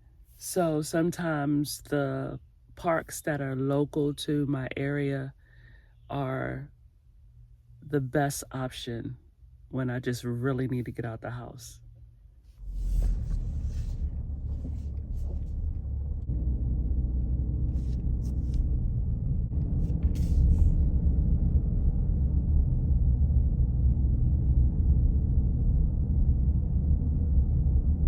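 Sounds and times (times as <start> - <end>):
vehicle rumbling in motion: 11.8 - 28.0
faint stepping tones: 12.5 - 16.4.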